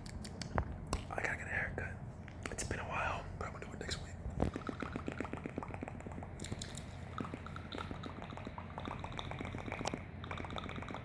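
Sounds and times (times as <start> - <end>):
wet mouth clicks and smacks: 0.0 - 1.1, 4.4 - 11.0.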